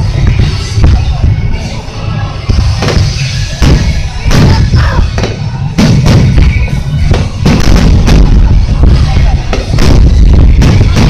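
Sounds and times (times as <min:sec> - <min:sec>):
continuous low rumble: 0:00.0 - 0:11.0
firework shells booming: 0:02.5 - 0:11.0.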